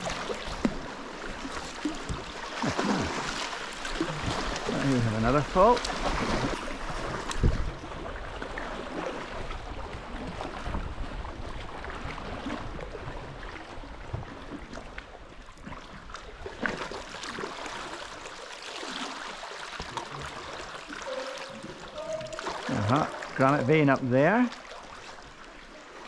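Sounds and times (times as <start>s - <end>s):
sharp paddle splashes: 0.0s - 7.6s
water splashing around kayak: 0.0s - 26.0s.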